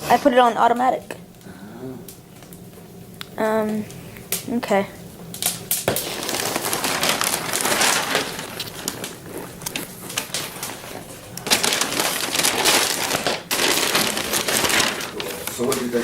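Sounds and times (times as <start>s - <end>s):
wrapping paper tearing and crumpling: 5.4s - 16.0s.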